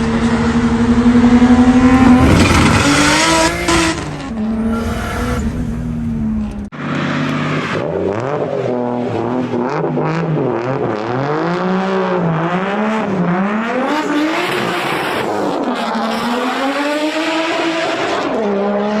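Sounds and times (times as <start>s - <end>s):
car engine revving: 0.9s - 6.7s.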